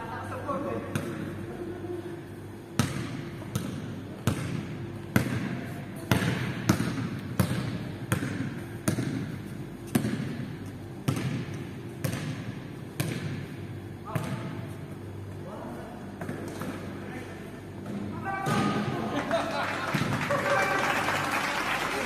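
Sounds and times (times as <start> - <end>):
basketball bouncing in gym: 0.7 - 1.4, 2.7 - 14.8.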